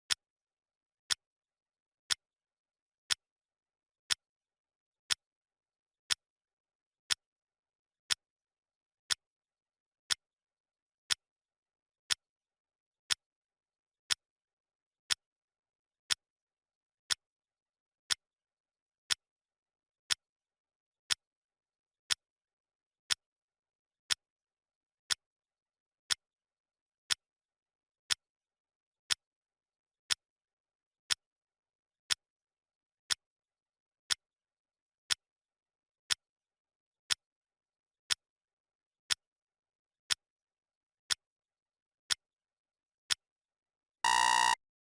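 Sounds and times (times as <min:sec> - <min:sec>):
clock ticking: 0:44.1 - 0:44.6.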